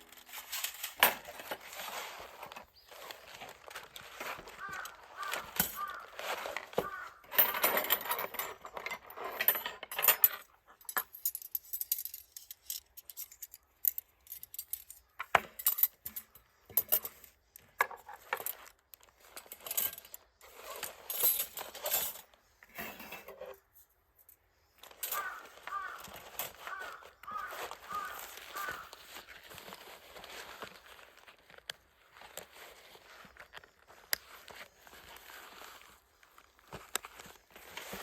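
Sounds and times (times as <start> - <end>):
metal plates clinking and rattling: 0.0 - 18.6, 19.4 - 23.6.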